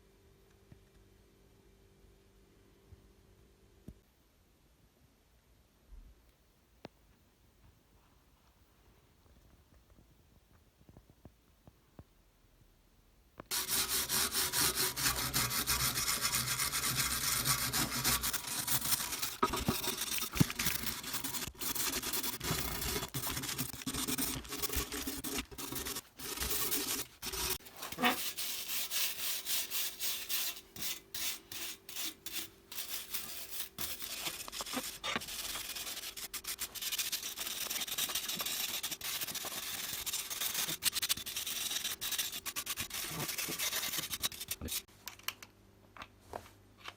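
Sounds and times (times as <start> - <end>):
faint steady hum: 0.0 - 46.9
abrasive scrubbing: 13.5 - 44.9.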